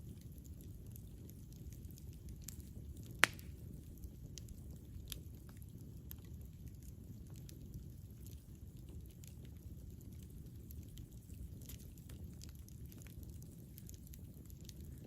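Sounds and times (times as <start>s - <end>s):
campfire crackling: 0.0s - 15.0s
loud sharp pop: 3.2s - 3.5s.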